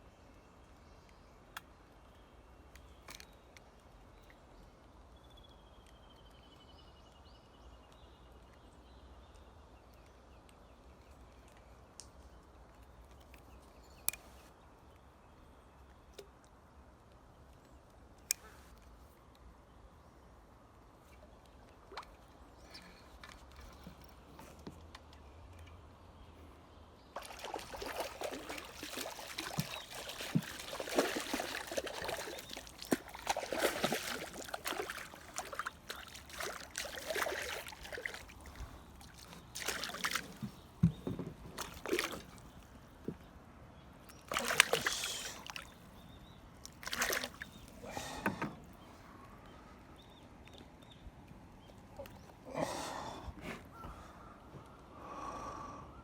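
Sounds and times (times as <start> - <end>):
water sloshing and splashing: 27.1 - 43.3, 44.1 - 48.4.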